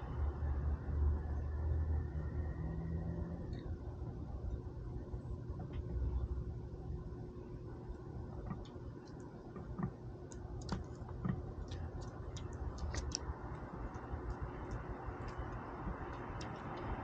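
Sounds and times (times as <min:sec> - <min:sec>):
low background rumble: 0:00.0 - 0:17.0
squirrel gnawing and cracking nuts: 0:07.8 - 0:17.0.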